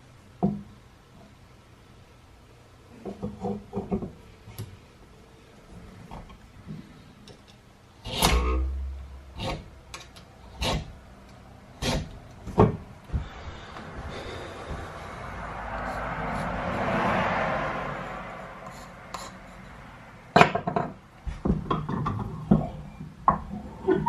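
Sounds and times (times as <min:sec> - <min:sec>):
scraping rasping noise: 0:08.0 - 0:11.0, 0:11.8 - 0:20.0
heavy thud: 0:12.5 - 0:15.1.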